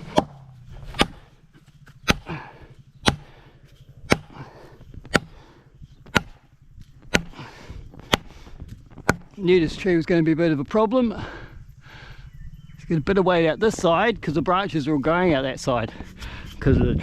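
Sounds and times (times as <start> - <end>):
hammer striking wedge: 0.9 - 1.2, 3.0 - 3.3, 4.1 - 4.3, 6.1 - 6.4, 7.1 - 7.4, 9.0 - 9.4.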